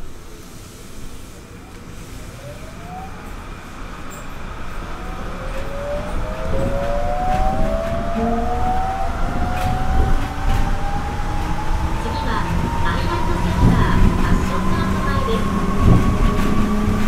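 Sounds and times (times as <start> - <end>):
train running noise: 0.0 - 17.0
inverter whine rising: 2.2 - 13.6
second rising tone: 2.3 - 16.4.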